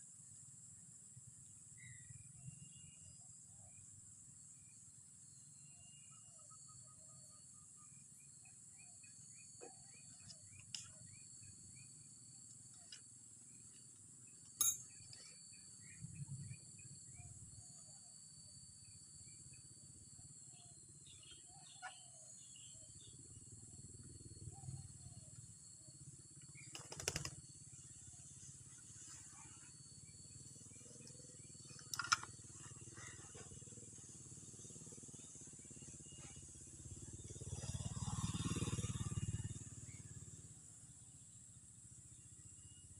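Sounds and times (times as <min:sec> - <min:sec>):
faint bird chirps: 0:00.0 - 0:41.4.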